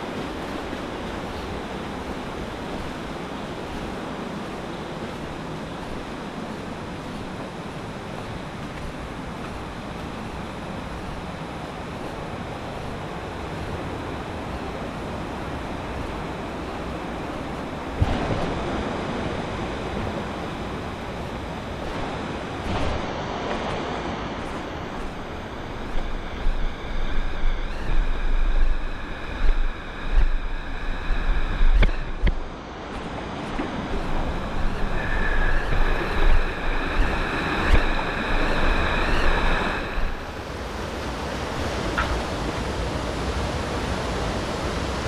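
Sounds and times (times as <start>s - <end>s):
rushing river water: 0.0s - 45.0s
wind buffeting microphone: 0.0s - 45.0s.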